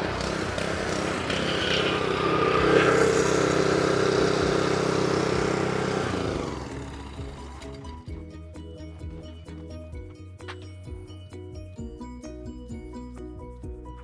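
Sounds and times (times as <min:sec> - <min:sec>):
water spray hissing: 0:00.0 - 0:06.1
pressure washer engine running: 0:00.0 - 0:08.1.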